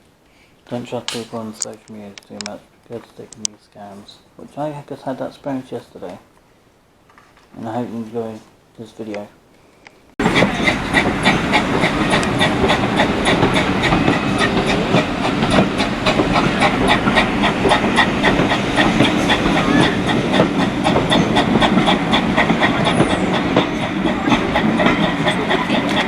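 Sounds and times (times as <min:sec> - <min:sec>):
model train wheels clicking: 0:10.2 - 0:26.0.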